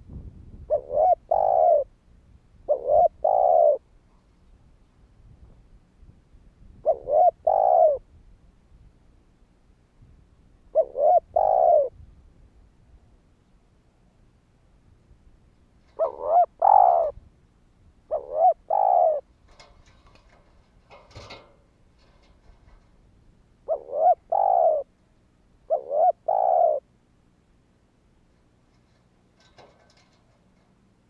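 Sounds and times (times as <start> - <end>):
dove cooing: 0.7 - 1.9, 2.6 - 3.9, 6.8 - 8.1, 10.7 - 12.0, 15.9 - 17.2, 18.1 - 20.3, 23.6 - 24.9, 25.6 - 26.9.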